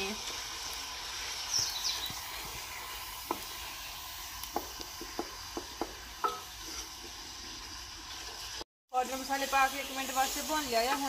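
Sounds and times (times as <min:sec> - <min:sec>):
masala sizzling in a pot: 0:00.0 - 0:11.0
wooden spoon scraping a pot: 0:05.0 - 0:08.5.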